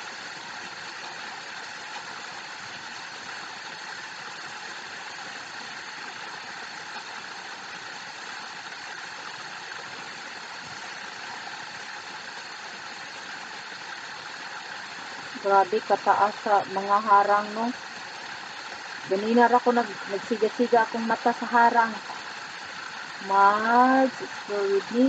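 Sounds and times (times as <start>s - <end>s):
waterfall rushing: 14.8s - 25.0s.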